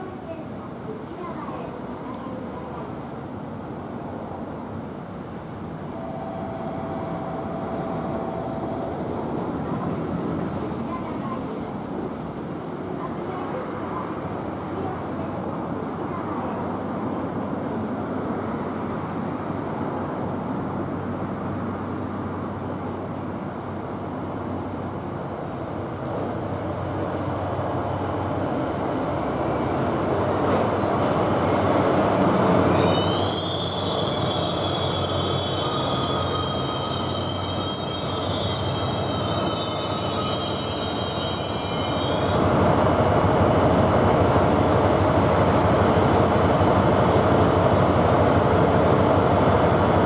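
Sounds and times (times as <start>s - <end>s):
diesel locomotive running: 5.7s - 12.6s, 20.2s - 50.0s
train brakes squealing: 32.7s - 42.5s.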